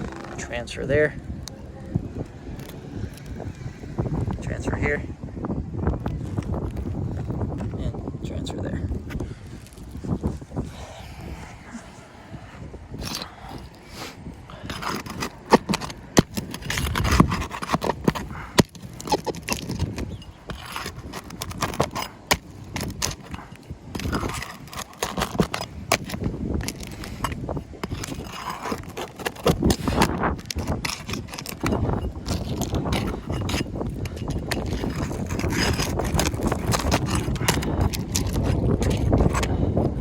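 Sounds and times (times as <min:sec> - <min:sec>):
shingles scraping: 0:12.9 - 0:40.0.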